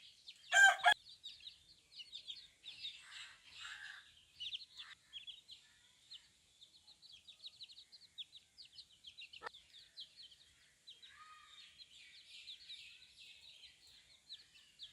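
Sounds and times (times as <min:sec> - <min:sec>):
chicks peeping: 0:06.6 - 0:11.0.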